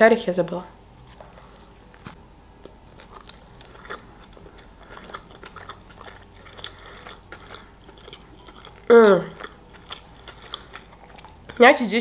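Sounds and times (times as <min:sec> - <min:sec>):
mouth chewing with clicks and smacks: 0:02.6 - 0:11.8.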